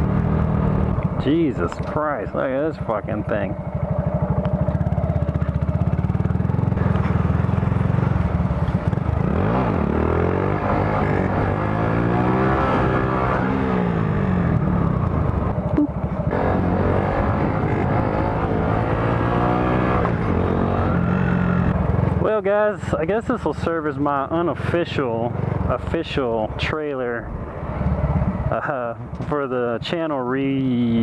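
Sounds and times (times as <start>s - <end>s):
motorcycle engine revving: 0.0s - 22.3s.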